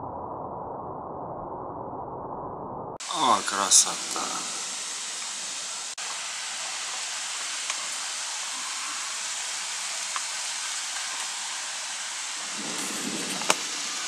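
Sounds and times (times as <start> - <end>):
rain hissing: 3.0 - 14.0.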